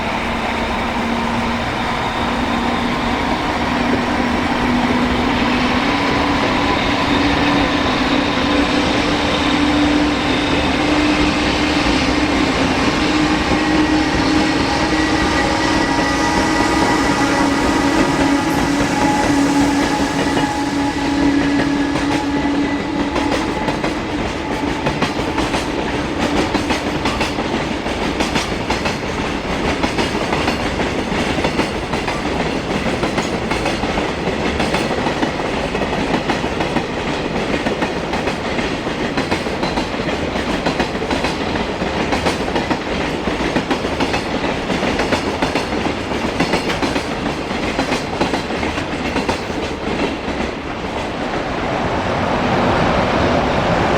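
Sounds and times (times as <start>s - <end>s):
train wheels clattering: 0.0s - 51.2s
humming tone: 0.2s - 23.8s.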